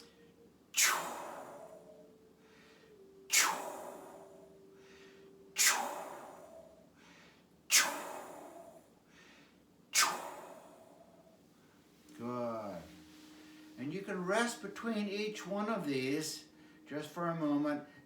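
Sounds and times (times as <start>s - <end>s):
quiet in-breaths: 0.0s - 13.9s, 16.4s - 17.0s, 17.8s - 18.0s
man blowing breathy exhales: 0.8s - 9.4s, 10.0s - 11.2s.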